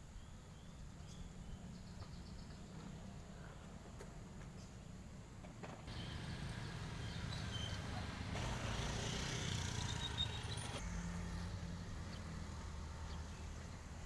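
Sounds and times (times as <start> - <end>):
vehicle engine rumbling: 1.1 - 14.0.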